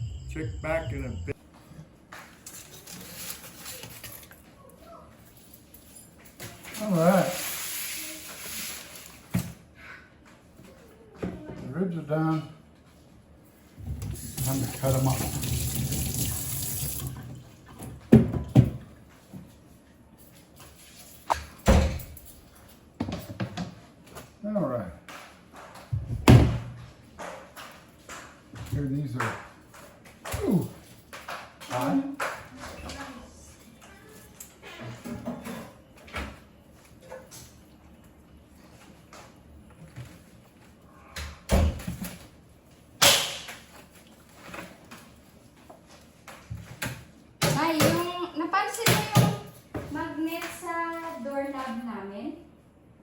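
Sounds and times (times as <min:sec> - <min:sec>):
household knocks and clatter: 0:17.2 - 0:19.5.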